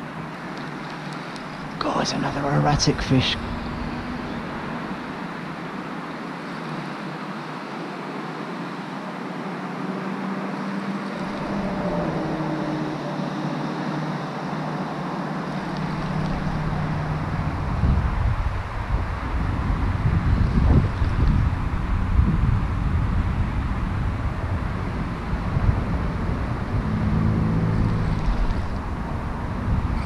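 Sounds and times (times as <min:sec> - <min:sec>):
wind and rain hissing: 0:00.0 - 0:08.6, 0:15.4 - 0:29.9
wind buffeting microphone: 0:15.6 - 0:30.0.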